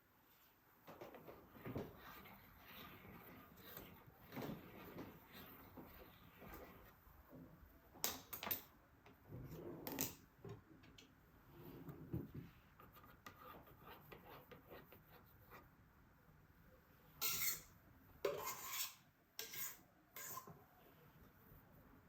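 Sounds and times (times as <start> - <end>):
decorating tool scraping: 17.2 - 17.7, 18.3 - 20.5.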